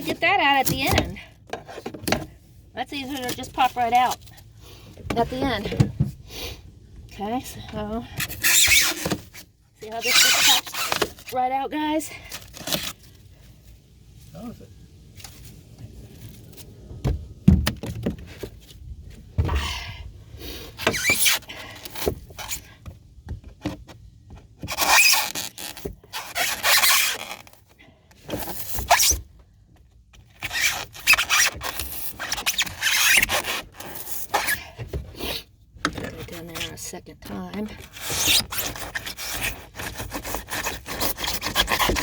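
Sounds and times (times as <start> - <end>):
squeaky scraping of foam: 7.3 - 13.2, 20.7 - 22.8, 24.6 - 27.6, 28.3 - 29.3, 30.2 - 42.0.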